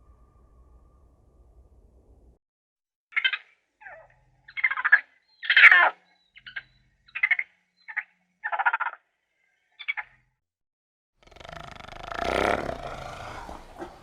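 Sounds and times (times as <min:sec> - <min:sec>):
short raspy animal calls: 0:11.2 - 0:14.0.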